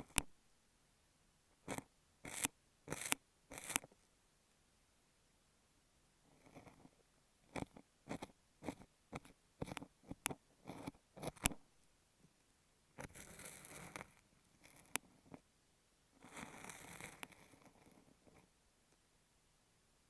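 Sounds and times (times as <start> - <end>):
ear pick crunching kinetic sand: 1.7 - 3.8.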